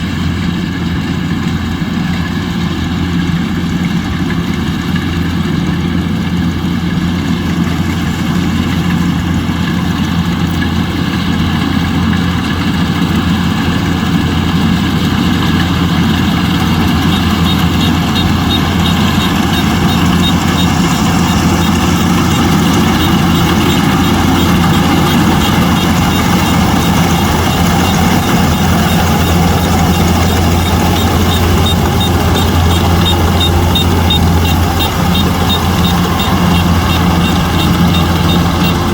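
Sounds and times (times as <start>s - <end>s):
combine harvester engine droning: 0.0s - 38.9s
fast light high ticking: 15.9s - 38.9s.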